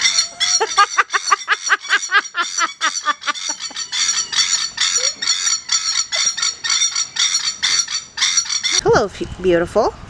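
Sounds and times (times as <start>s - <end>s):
parrots screeching in chorus: 0.0s - 8.8s
parrots calling harshly: 0.0s - 8.9s.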